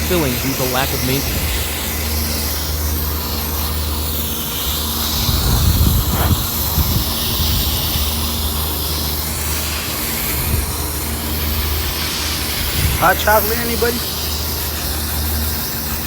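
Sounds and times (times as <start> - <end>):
low equipment hum: 0.0 - 9.8
rushing air hiss: 0.0 - 16.0
rough rumble: 4.4 - 8.3.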